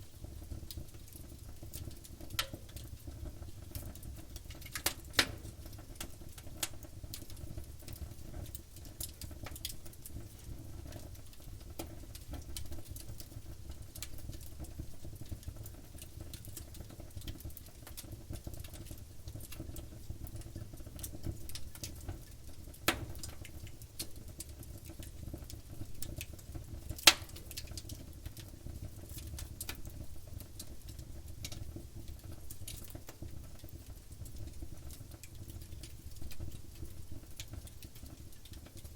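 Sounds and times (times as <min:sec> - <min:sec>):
wood fire crackling: 0:00.0 - 0:38.9
sharp fire pops: 0:27.0 - 0:27.8.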